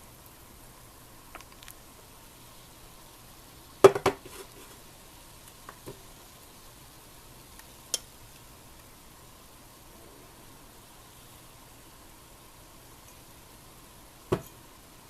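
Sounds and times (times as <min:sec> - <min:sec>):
dishes and utensils clinking: 0:14.3 - 0:14.6.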